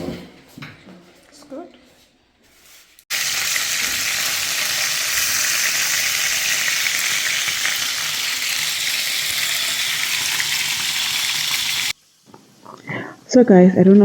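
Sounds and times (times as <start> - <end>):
food sizzling in hot oil: 3.1 - 12.7.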